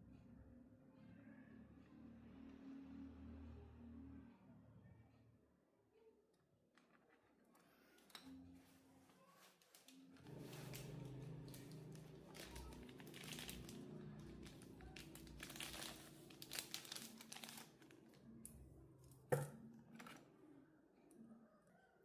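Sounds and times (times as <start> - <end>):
material crinkling and rustling: 6.9 - 18.3.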